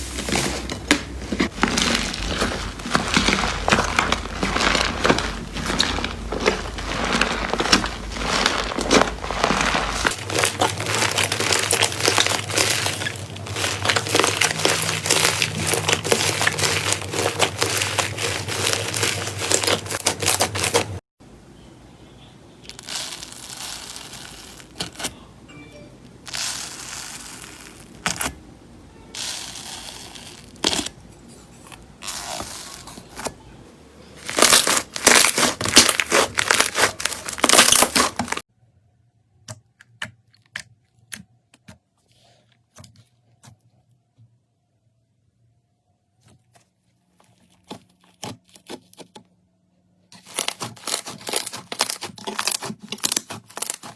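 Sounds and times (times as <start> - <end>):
slime squishes: 0.0 - 21.0, 22.6 - 25.2, 26.3 - 28.5, 29.2 - 38.4, 50.2 - 53.9
slime crackling when squeezed: 1.6 - 21.0, 34.2 - 38.4.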